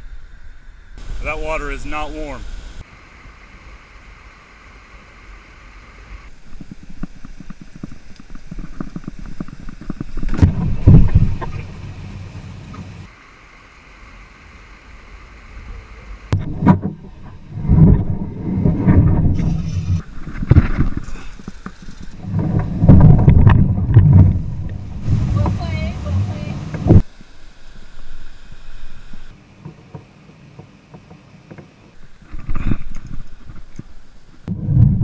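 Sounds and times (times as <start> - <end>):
wind buffeting microphone: 1.0 - 2.8.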